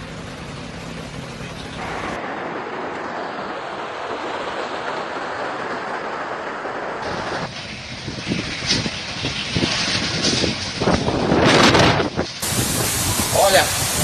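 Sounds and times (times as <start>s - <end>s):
low engine hum: 0.0s - 14.0s
heavy rain rushing: 1.8s - 7.5s, 11.3s - 14.0s.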